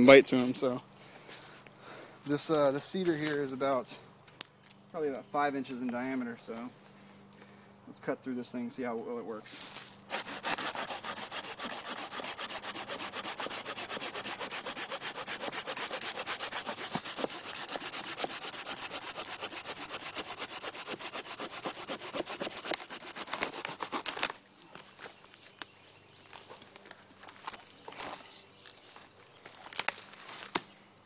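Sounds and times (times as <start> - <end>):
hand saw cutting log: 10.1 - 24.3.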